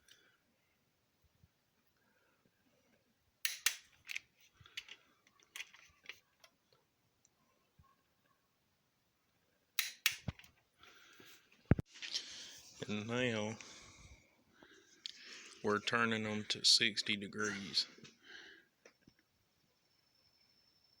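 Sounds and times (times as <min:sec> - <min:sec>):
torque wrench clicks: 0:03.4 - 0:03.8, 0:09.8 - 0:10.3.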